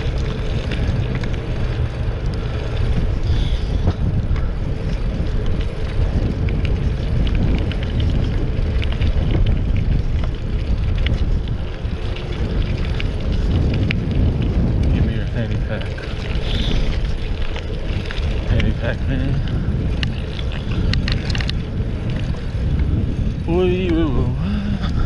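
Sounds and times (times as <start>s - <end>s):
tyres rumbling on bumpy road: 0.0s - 25.0s
wind over microphone: 0.0s - 25.0s
small rattling clicks: 14.8s - 22.6s.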